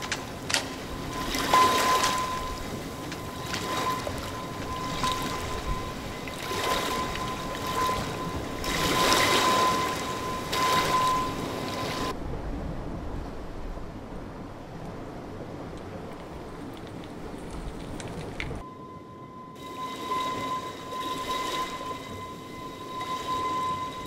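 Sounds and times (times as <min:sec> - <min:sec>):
steady high tone: 0:00.0 - 0:12.2, 0:18.6 - 0:24.0
surf-like electronic noise: 0:00.0 - 0:12.2, 0:18.6 - 0:24.0.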